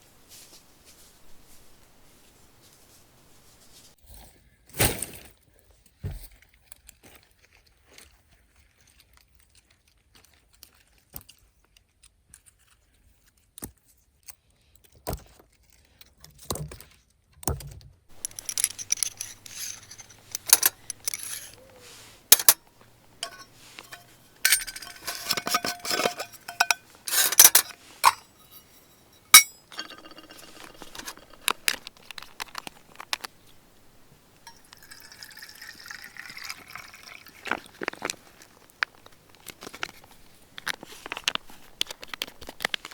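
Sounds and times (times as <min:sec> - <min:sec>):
small hard objects clinking: 0:18.1 - 0:42.9.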